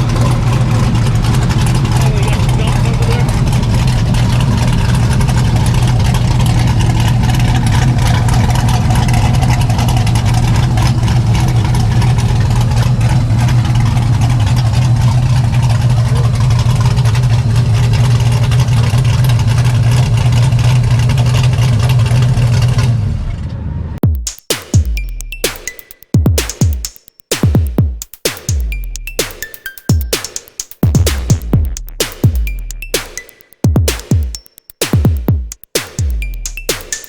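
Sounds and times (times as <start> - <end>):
car engine idling: 0.0 - 17.9.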